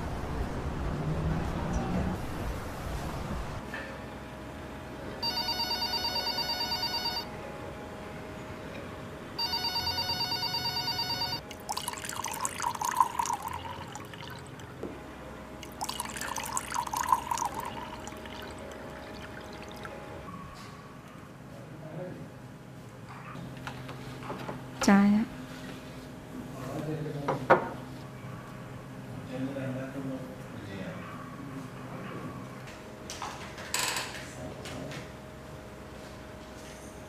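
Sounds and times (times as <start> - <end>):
telephone ringing: 5.2 - 7.3, 9.4 - 11.4
liquid pouring into glasses: 11.4 - 14.8, 15.6 - 20.0.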